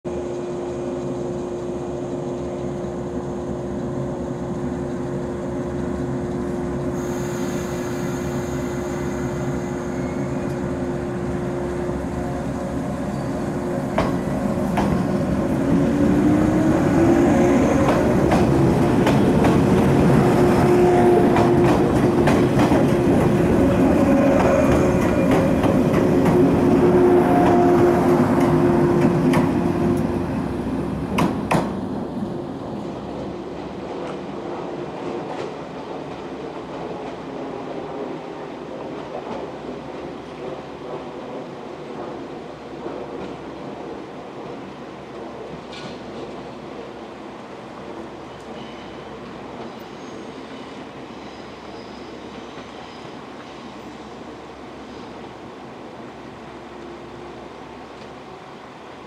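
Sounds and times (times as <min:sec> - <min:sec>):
electric train humming: 0:00.1 - 0:45.6.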